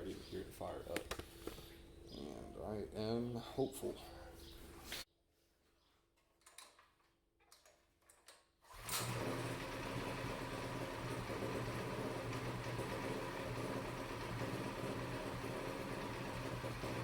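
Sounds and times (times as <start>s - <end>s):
small engine running: 8.7s - 17.0s.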